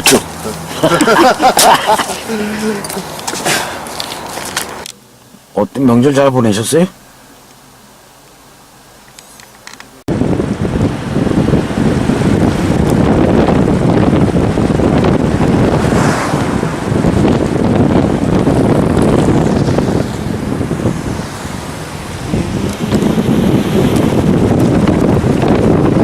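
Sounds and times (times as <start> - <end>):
wind buffeting microphone: 10.0 - 26.0.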